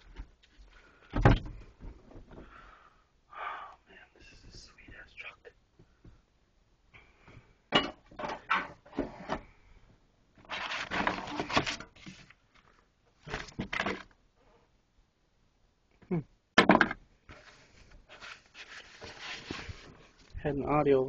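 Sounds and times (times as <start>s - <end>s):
rustling: 10.4s - 14.1s, 17.3s - 20.4s
objects knocking and clacking: 16.6s - 17.0s.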